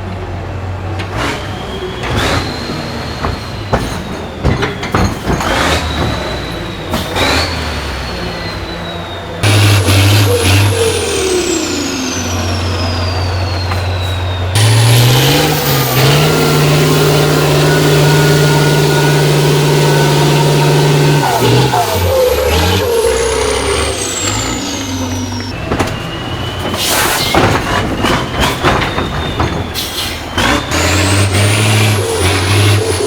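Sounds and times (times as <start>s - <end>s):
diesel engine revving: 0.0s - 33.0s
sharp knocks and clanks: 1.0s - 7.7s, 13.7s - 33.0s
high whistle sliding down: 5.5s - 33.0s.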